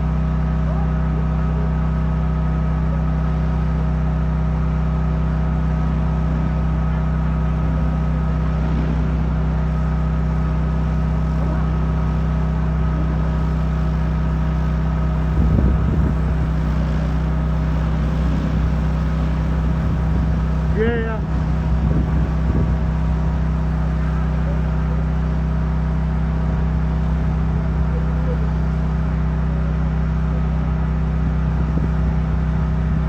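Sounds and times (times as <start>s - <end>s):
drone rotors humming: 2.8s - 33.0s
loud wavering sound: 7.7s - 11.4s.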